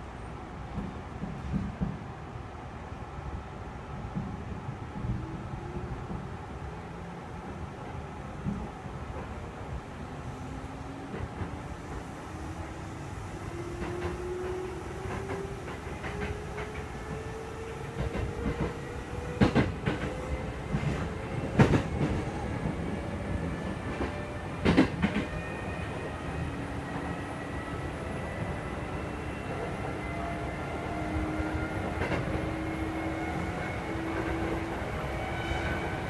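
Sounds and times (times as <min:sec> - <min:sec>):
train cabin rumble: 0:10.6 - 0:25.3.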